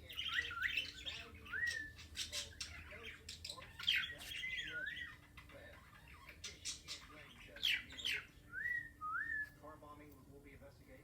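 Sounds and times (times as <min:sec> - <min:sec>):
bird whistled calls: 0:08.0 - 0:09.6.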